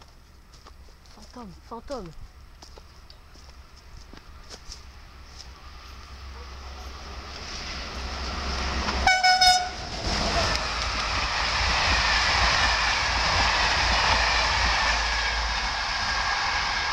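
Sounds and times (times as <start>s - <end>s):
passenger train passing: 1.4s - 16.9s
train horn blast: 8.9s - 10.6s.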